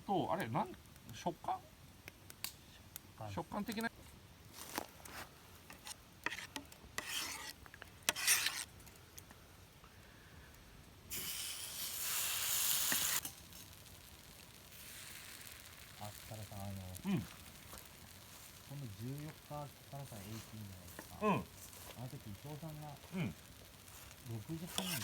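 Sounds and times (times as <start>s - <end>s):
utensil scraping and stirring: 5.1s - 9.0s, 11.1s - 25.0s
loud hiss from pan: 5.7s - 8.7s, 10.2s - 25.0s.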